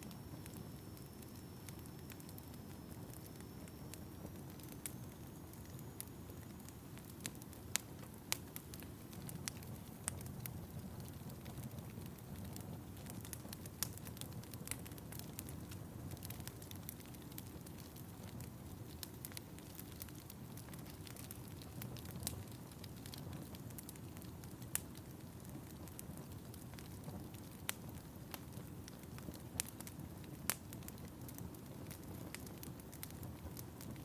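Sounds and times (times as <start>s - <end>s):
fire crackling in a fireplace: 0.0s - 34.0s.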